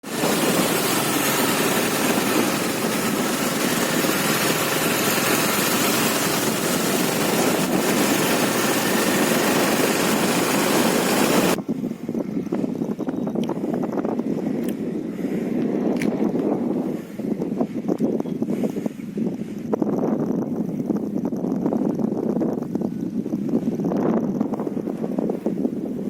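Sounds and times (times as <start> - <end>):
motorcycle engine running: 0.0 - 11.6
wind on microphone: 0.0 - 26.0.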